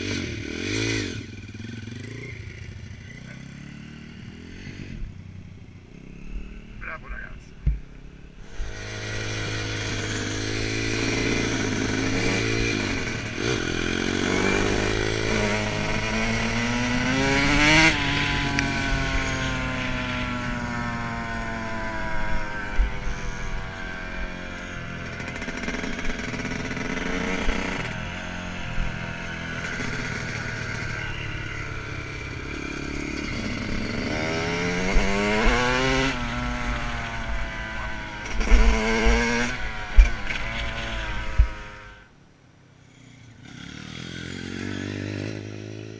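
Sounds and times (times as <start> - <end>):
dirt bike engine revving: 0.0 - 5.2, 8.4 - 42.1, 43.3 - 45.9.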